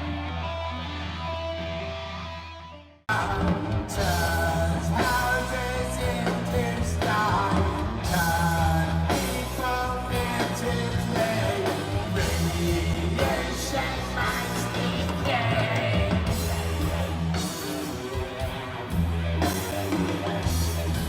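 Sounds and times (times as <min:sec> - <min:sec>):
rock band playing: 0:00.0 - 0:21.0
lead singer singing: 0:03.1 - 0:18.1.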